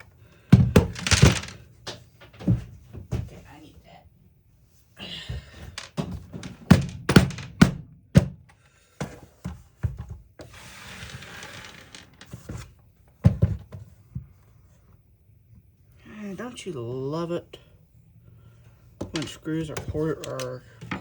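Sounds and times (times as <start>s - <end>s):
knocks of power tool parts: 5.7s - 10.2s.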